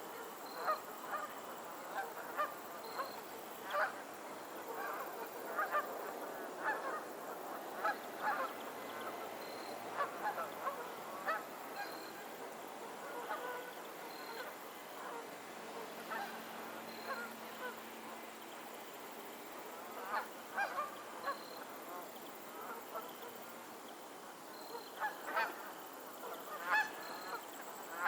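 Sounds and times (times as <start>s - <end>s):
background hiss: 0.0s - 28.0s
geese honking: 1.9s - 4.0s, 7.8s - 9.2s, 9.9s - 12.3s, 12.9s - 17.8s.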